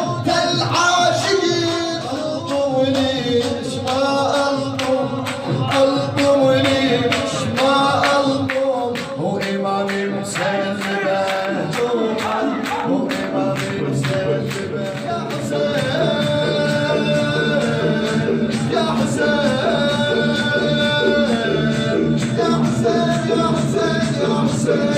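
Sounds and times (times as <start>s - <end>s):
man chanting a lament: 0.0s - 24.9s
rhythmic sharp strikes: 0.0s - 24.9s.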